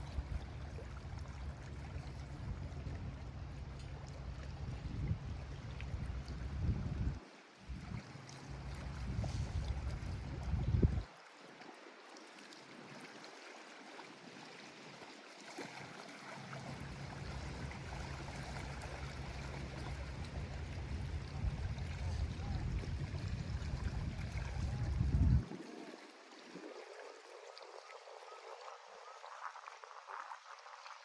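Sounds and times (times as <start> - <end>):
deep rumble: 0.0 - 11.1, 16.9 - 25.4
waves lapping on shore: 0.0 - 31.0.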